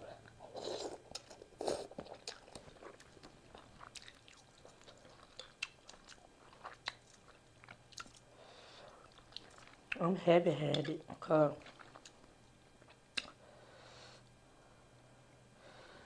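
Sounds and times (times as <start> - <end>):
close chewing mouth noises: 0.2 - 8.3, 8.9 - 10.1, 11.6 - 13.4
wet chewing clicks: 0.9 - 8.2, 9.0 - 10.1, 11.6 - 13.4.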